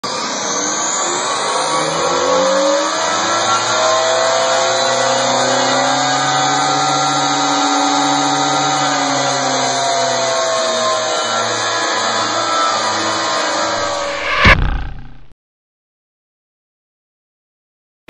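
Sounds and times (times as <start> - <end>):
toy truck motors whining: 0.0 - 13.8.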